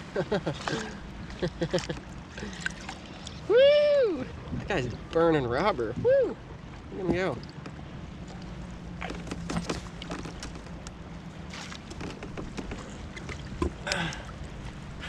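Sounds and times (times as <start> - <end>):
low steady hum: 0.0 - 15.0
water and wind noise: 0.0 - 15.0
gear clicks and knocks on kayak: 9.0 - 14.0.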